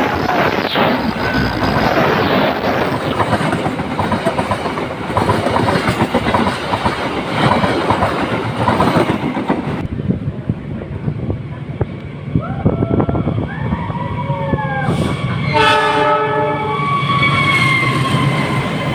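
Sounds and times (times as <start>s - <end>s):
train wheels clattering: 0.0s - 9.8s.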